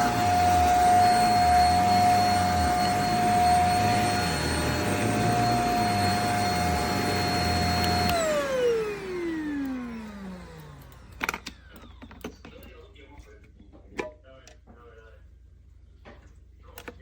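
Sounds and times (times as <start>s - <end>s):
vacuum cleaner motor whine: 0.0s - 12.5s.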